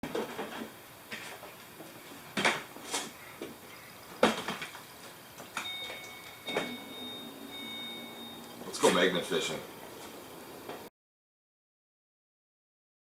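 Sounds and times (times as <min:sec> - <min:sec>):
high-pitched tone: 0:05.6 - 0:09.1.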